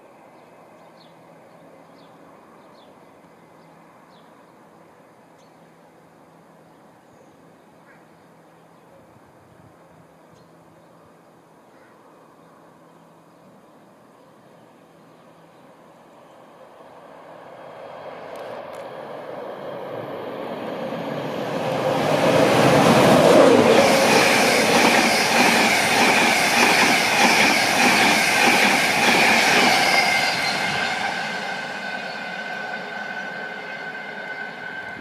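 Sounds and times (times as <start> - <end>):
electric train passing at speed: 12.2 - 35.0.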